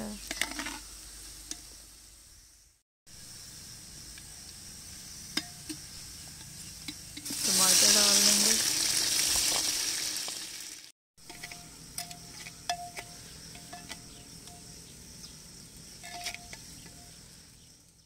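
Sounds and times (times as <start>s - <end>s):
tomatoes sizzling in hot oil: 0.0s - 18.0s
ladle scraping a clay pot: 11.2s - 14.7s, 16.0s - 17.2s.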